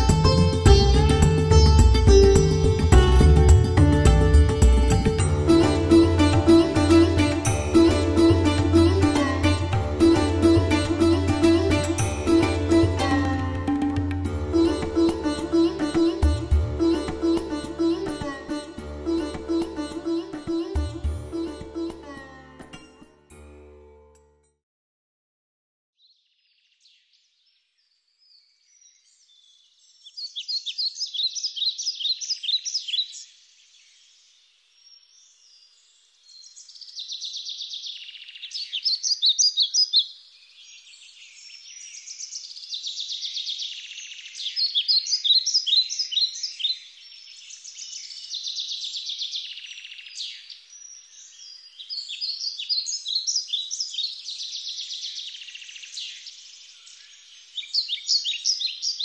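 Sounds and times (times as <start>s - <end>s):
songbird chirping: 26.0s - 59.0s.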